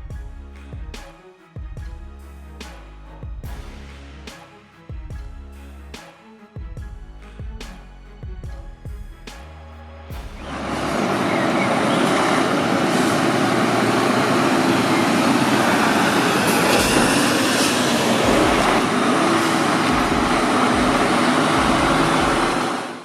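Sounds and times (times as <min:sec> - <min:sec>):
heavy machinery rumbling: 0:10.2 - 0:23.0.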